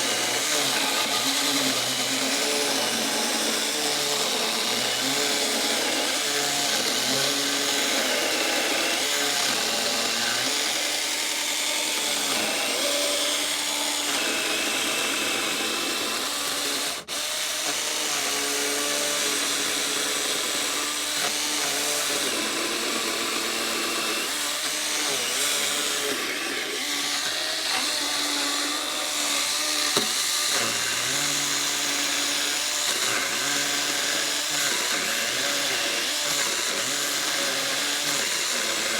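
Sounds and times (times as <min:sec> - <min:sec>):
electric chainsaw cutting wood: 0:00.0 - 0:38.9.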